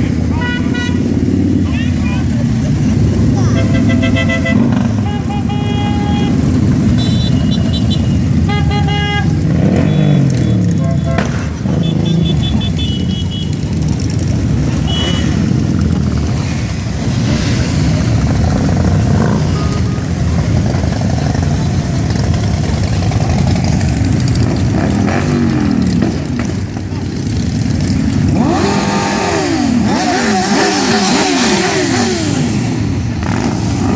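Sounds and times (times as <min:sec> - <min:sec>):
motorcycle engines revving: 0:00.0 - 0:33.9
vehicle horn blasts: 0:00.4 - 0:01.1, 0:03.6 - 0:13.6, 0:14.8 - 0:15.4.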